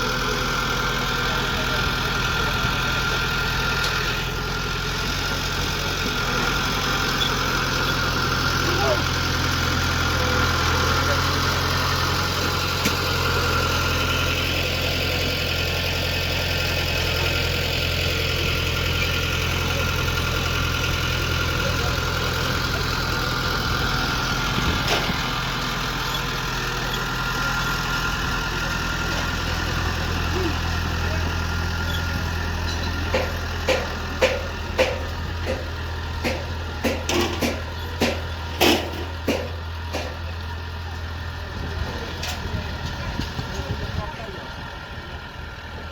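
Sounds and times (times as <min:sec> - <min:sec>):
engine idling: 0:00.0 - 0:45.9
sharp knocks: 0:33.1 - 0:40.2.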